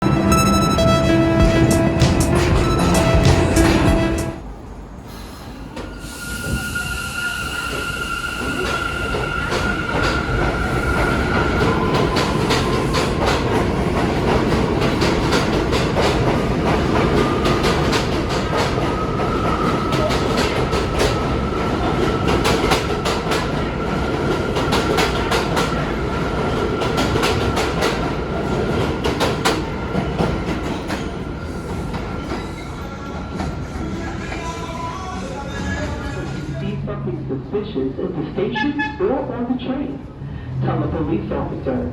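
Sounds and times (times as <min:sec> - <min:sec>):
steady high tone: 0:00.0 - 0:04.6
train rumble: 0:00.0 - 0:06.9, 0:07.5 - 0:41.9
subway train wheels clicking: 0:00.0 - 0:39.0.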